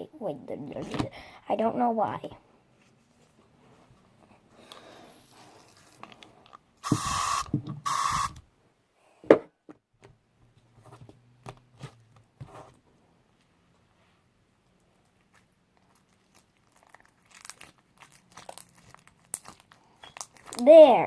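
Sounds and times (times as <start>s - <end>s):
aerosol spray hissing: 6.8s - 8.4s.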